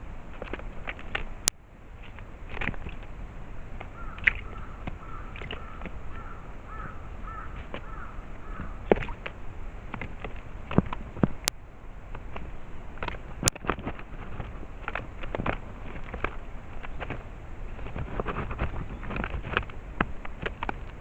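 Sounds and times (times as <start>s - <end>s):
bird calling short notes: 4.0s - 8.9s.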